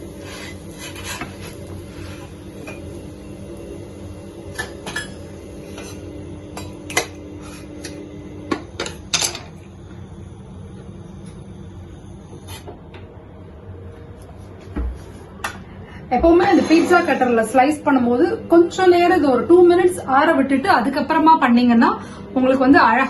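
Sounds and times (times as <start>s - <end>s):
low steady hum: 0.0s - 23.0s
cookware clinking and clattering: 8.8s - 9.5s.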